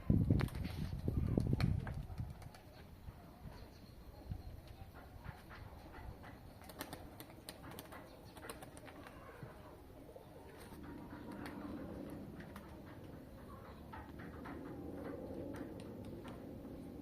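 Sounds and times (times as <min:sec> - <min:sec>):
pigeons cooing: 0:04.8 - 0:17.0.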